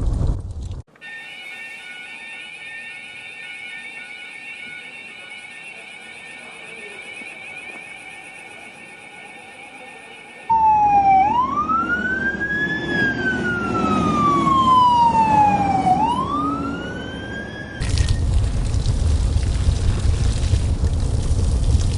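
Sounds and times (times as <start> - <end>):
high-pitched electronic alarm: 1.0 - 17.8
emergency siren wailing: 1.1 - 17.9
traffic rumble: 10.5 - 21.9.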